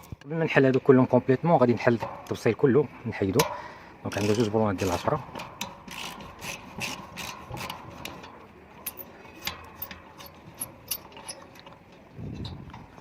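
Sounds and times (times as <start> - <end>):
dull low handling sound: 1.8 - 13.0
wrench metallic clicks: 3.4 - 12.7.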